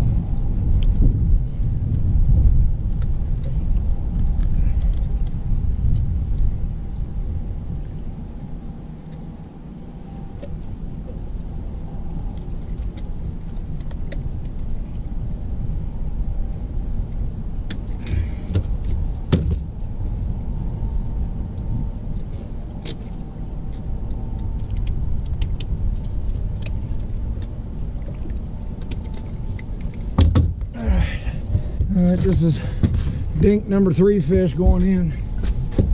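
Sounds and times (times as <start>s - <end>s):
boat motor rumbling: 0.0s - 35.9s
knocks and clicks of gear: 17.1s - 19.7s, 22.8s - 30.7s, 34.6s - 35.9s.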